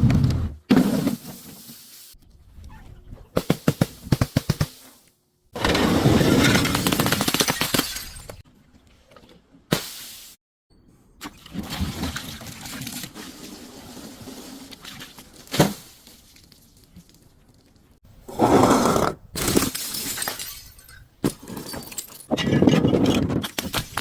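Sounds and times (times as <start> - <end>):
glass breaking and crunching: 6.5 - 8.4, 19.4 - 22.3.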